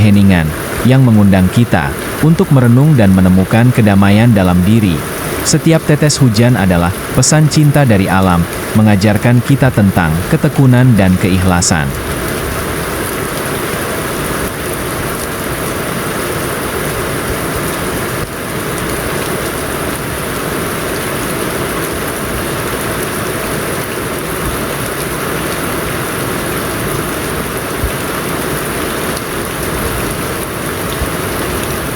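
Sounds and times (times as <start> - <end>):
heavy rain hissing: 0.0 - 31.9.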